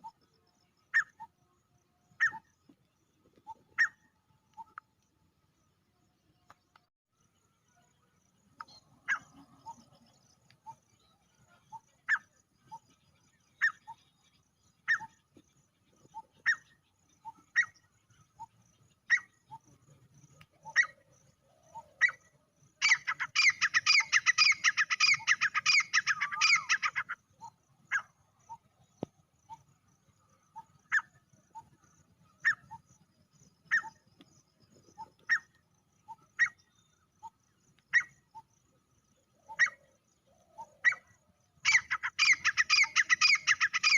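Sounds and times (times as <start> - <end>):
francolin calling: 2.1 - 2.6, 8.6 - 15.2, 16.0 - 19.8, 20.4 - 28.7, 29.4 - 43.9.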